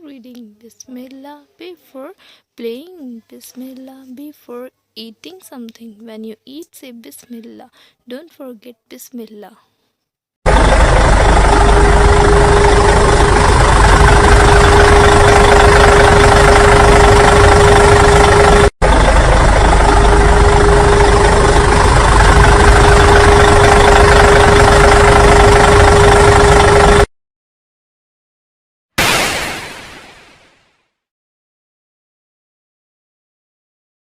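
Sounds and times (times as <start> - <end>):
loud engine-like humming noise: 10.5 - 27.1.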